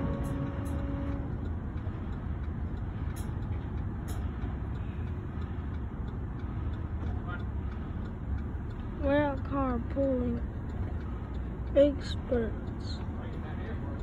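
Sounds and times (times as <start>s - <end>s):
steady tone: 0.0s - 9.8s
wheels rumbling on rails: 0.0s - 14.0s.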